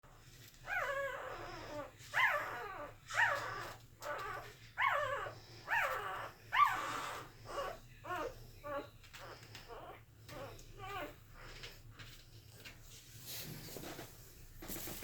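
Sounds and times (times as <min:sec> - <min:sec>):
puppies whimpering and squeaking: 0:00.4 - 0:11.8.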